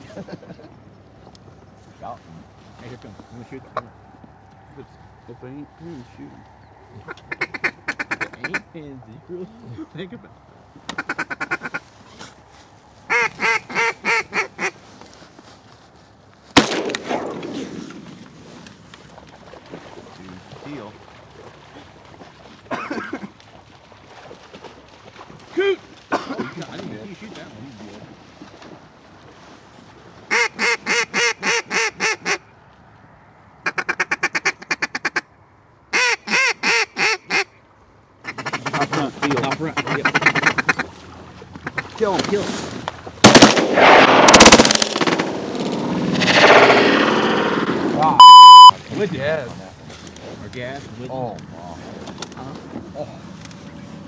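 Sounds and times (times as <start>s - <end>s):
duck quacks: 7.0s - 8.7s, 10.9s - 11.8s, 13.1s - 14.8s, 30.3s - 32.4s, 33.6s - 35.3s, 35.9s - 37.5s, 38.2s - 40.9s, 41.6s - 42.0s
shotgun shot: 16.6s - 18.1s, 43.2s - 48.0s.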